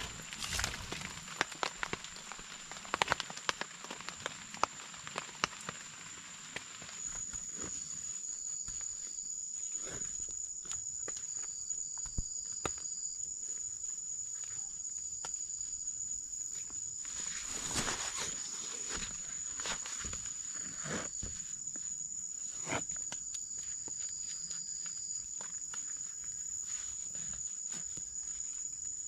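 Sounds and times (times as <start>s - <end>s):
crickets trilling: 0.0s - 29.0s
short rustle: 17.1s - 21.1s.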